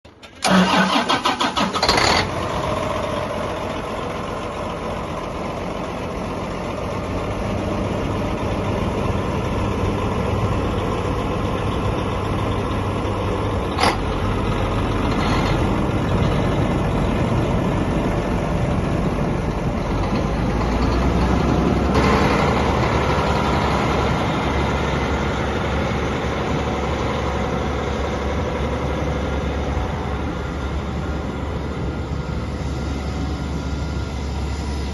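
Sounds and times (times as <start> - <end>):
tractor engine starting and idling: 0.1 - 34.9.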